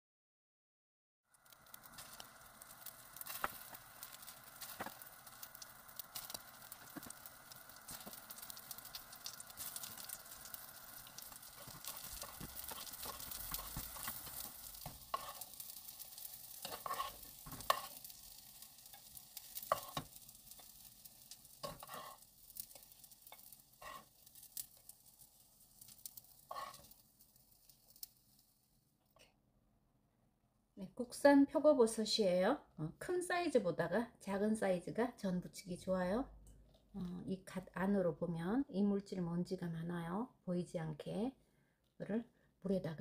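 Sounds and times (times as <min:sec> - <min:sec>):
mushrooms sizzling in oil: 0:01.3 - 0:28.7.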